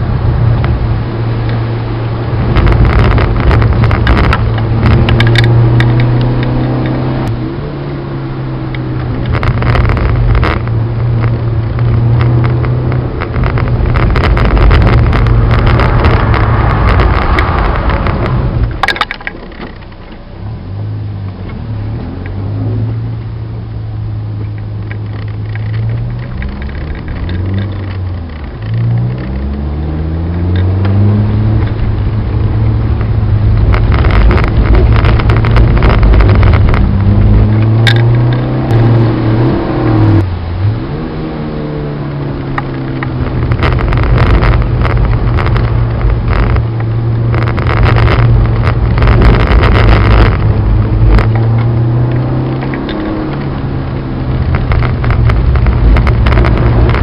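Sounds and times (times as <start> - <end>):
loud rushing noise: 0.0 - 6.6, 13.0 - 18.9, 42.0 - 57.0
car engine revving through gears: 0.0 - 57.0.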